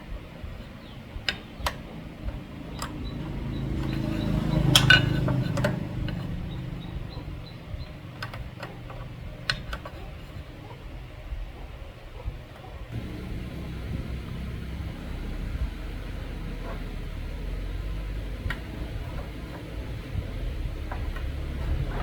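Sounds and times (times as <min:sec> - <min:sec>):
metal parts clinking: 0:02.6 - 0:07.3
low rumble: 0:13.0 - 0:22.0.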